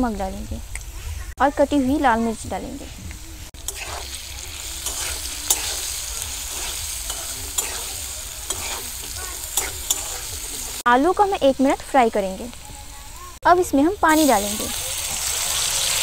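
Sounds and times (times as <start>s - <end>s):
potatoes sizzling in oil: 1.6s - 16.0s
metal spatula scraping pan: 3.6s - 10.8s.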